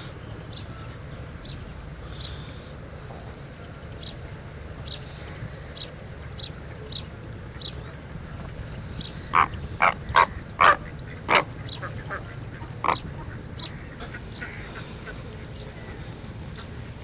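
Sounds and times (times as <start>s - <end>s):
ducks quacking: 9.2s - 16.8s.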